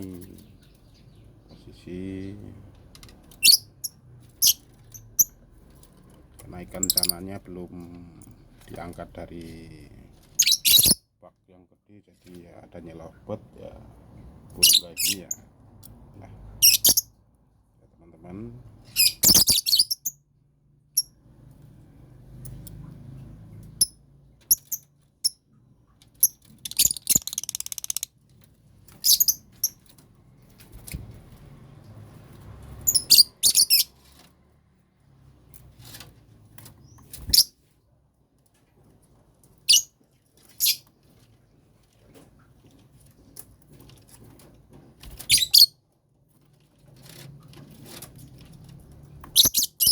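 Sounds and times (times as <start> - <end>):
lovebirds chirping: 6.8 - 7.2, 10.4 - 11.0, 26.2 - 28.1, 29.0 - 29.8, 45.2 - 45.7, 49.4 - 49.9.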